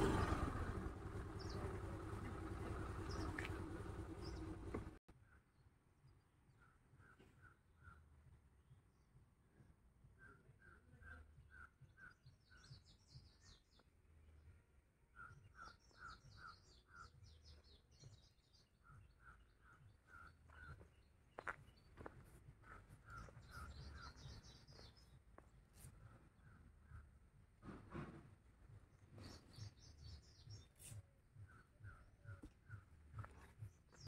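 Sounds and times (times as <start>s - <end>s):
birds twittering: 0.0s - 5.0s, 15.1s - 25.2s.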